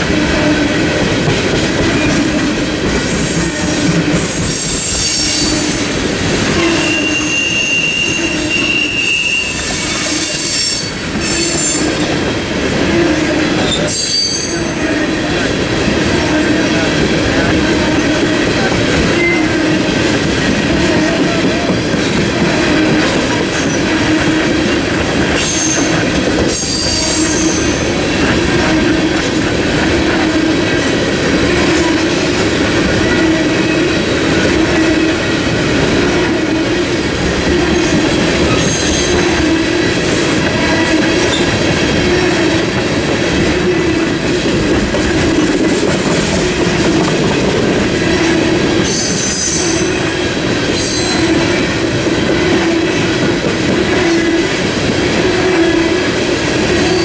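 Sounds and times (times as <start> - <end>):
freight train rolling past: 0.0 - 57.0
train wheels clickety-clack: 0.0 - 57.0
high wheel squeals: 4.2 - 11.9, 25.4 - 27.9.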